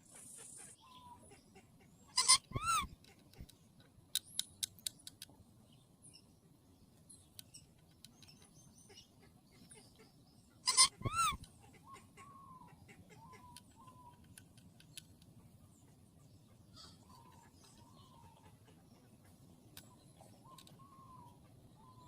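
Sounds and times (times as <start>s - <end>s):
parrot squawk: 2.1s - 2.9s, 10.6s - 13.4s
soft gliding whistling calls: 2.2s - 3.0s, 10.7s - 14.3s, 19.8s - 22.0s.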